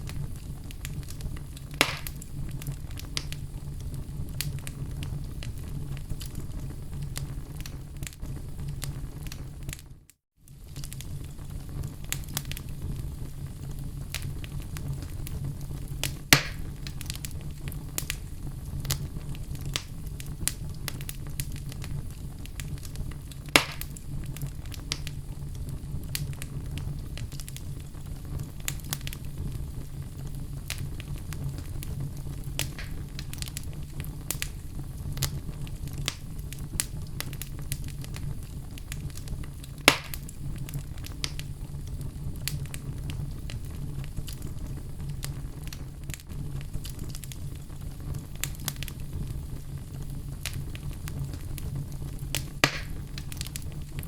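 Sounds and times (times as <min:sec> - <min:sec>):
fire crackling: 0:00.0 - 0:54.0
fire popping: 0:00.0 - 0:54.0.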